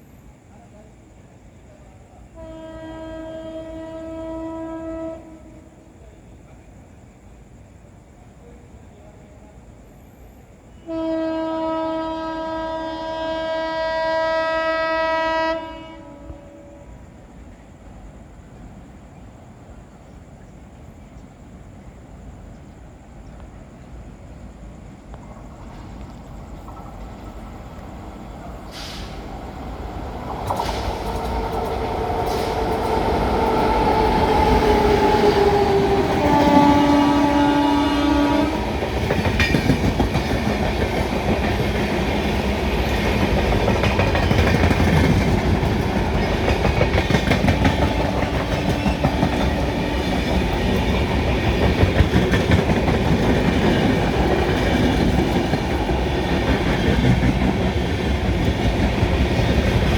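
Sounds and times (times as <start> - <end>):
train rumble: 0.0 - 59.9
train horn blasts: 2.3 - 5.9, 10.7 - 17.2, 35.2 - 38.8.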